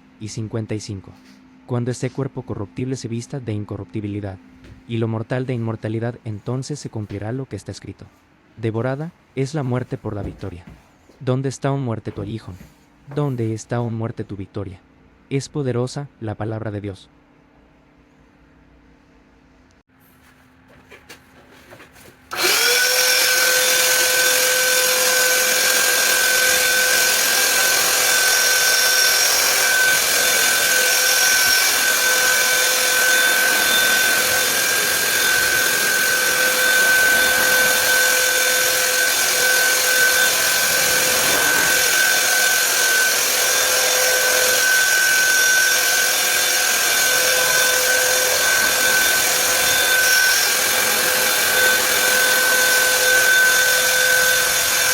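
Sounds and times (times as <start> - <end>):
power tool motor whining: 22.3 - 54.9.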